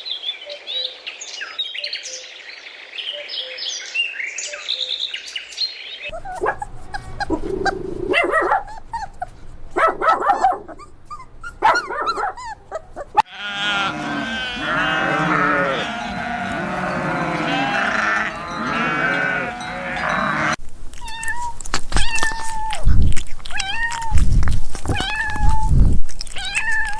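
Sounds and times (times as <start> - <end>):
animals calling: 6.1 - 20.6
cat meowing: 13.2 - 21.4.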